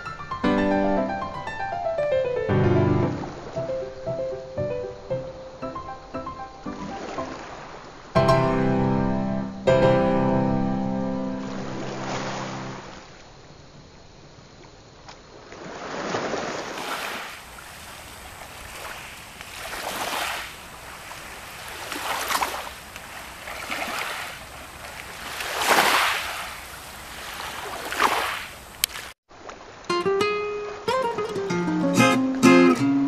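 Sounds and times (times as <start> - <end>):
waves washing on shore: 6.8 - 8.2, 11.4 - 13.1, 15.5 - 29.9.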